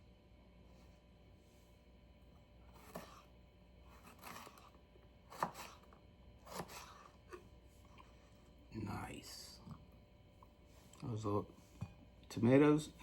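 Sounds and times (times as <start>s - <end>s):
knife slicing pepper: 2.7s - 3.3s, 3.9s - 7.1s.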